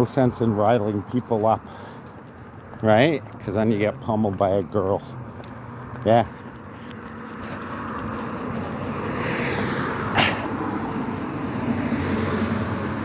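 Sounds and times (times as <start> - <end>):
vehicle passing: 0.0 - 13.0.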